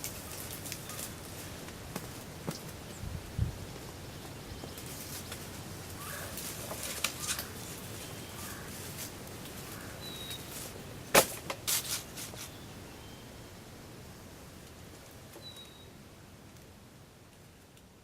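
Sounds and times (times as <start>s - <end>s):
faint bird chirps: 9.7s - 10.5s, 12.4s - 13.6s, 15.4s - 16.0s.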